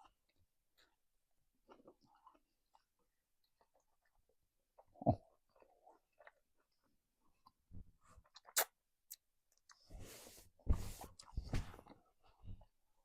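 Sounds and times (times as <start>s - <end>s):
person chewing: 0.0s - 9.9s
small mouth clicks: 8.3s - 9.8s.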